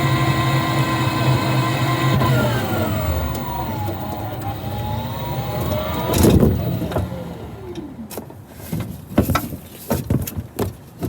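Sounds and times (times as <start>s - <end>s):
electric drive whining: 0.0s - 8.3s
road rumble: 0.0s - 8.8s.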